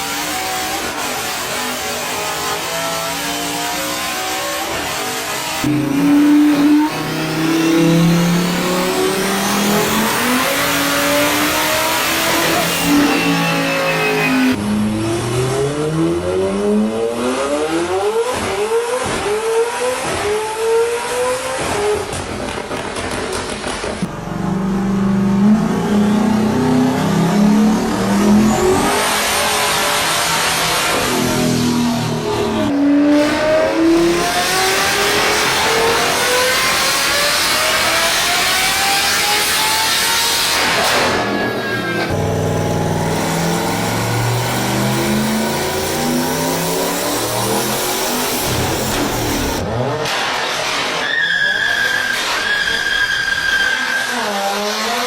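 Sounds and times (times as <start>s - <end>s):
car engine revving at full throttle: 0.0s - 51.1s, 54.1s - 55.0s
sharp engine pops: 21.5s - 24.2s.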